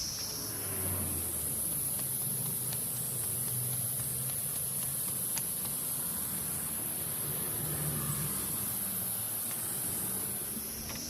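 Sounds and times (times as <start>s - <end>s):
crickets chirping: 0.0s - 11.0s
footsteps walking: 1.1s - 7.0s.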